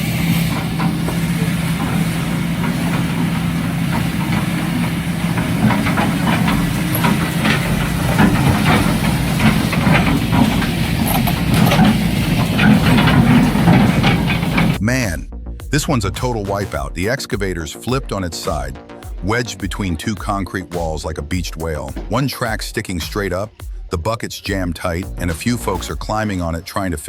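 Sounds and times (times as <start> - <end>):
heavy machinery engine running: 0.0 - 14.8
hiss: 0.0 - 14.8
knocks and clanks: 0.0 - 14.8, 21.9 - 22.2.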